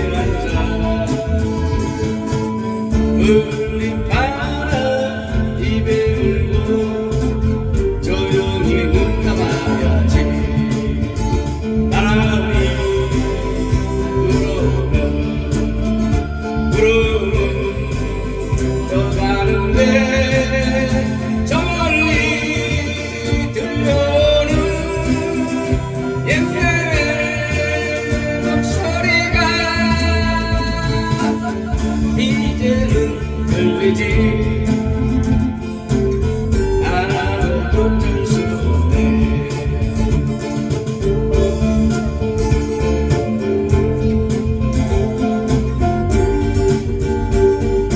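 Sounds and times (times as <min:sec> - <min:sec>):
guitar accompaniment: 0:00.0 - 0:47.9
person singing a ballad: 0:00.0 - 0:47.9.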